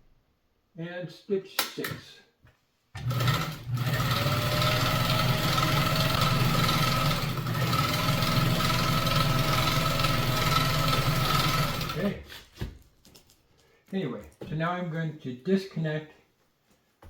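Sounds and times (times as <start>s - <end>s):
sewing machine running: 3.0s - 12.2s.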